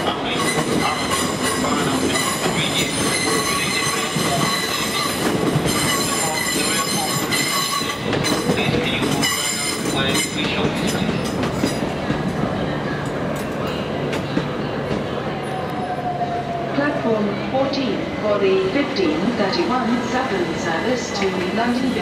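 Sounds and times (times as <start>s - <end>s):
train rolling noise: 0.0s - 22.0s
train wheels squealing: 0.3s - 11.4s.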